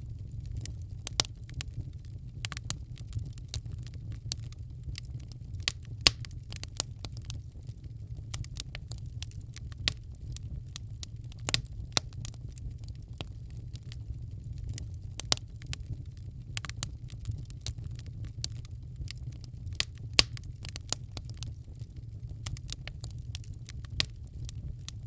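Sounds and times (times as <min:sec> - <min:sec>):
low rumble of flames: 0:00.0 - 0:25.0
wood fire crackling and popping: 0:00.0 - 0:25.0.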